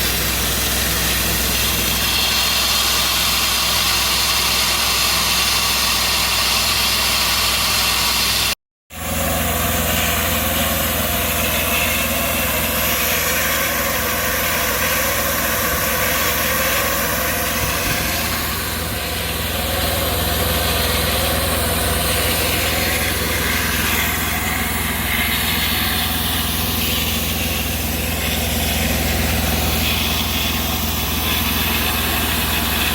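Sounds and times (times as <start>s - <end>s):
cable blowing machine humming: 0.0s - 32.9s
air hissing: 9.8s - 32.9s.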